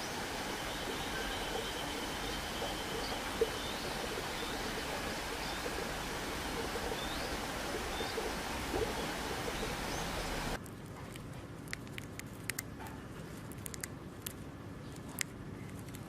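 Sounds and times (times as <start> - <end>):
faint bird chirps: 0.0 - 10.6
outdoor background hiss: 0.0 - 15.9.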